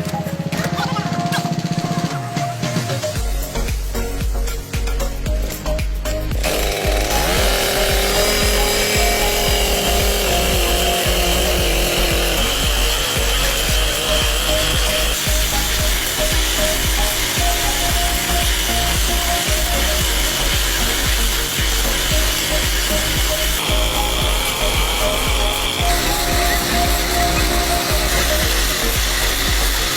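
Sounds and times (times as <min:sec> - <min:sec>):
rail grinder grinding steel: 0:04.1 - 0:29.9.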